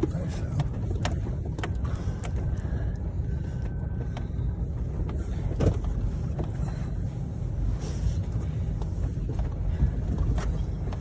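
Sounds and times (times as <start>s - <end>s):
light clicks and rattles: 0.0s - 6.8s
vehicle rumble from inside cab: 0.0s - 11.0s.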